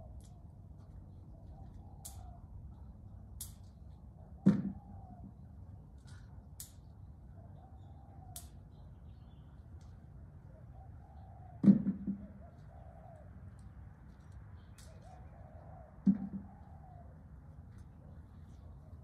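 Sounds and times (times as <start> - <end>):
bird cooing: 1.3 - 2.9, 4.2 - 5.4, 10.4 - 13.6, 14.9 - 17.3.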